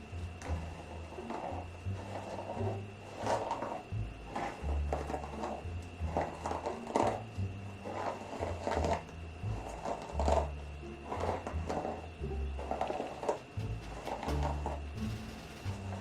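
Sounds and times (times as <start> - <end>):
music with deep bass line: 0.0 - 16.0.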